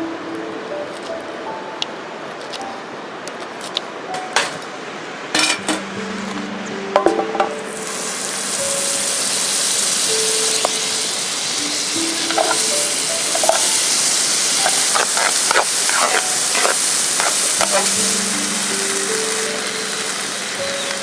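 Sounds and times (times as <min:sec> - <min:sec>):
food sizzling in a pan: 0:07.6 - 0:21.0.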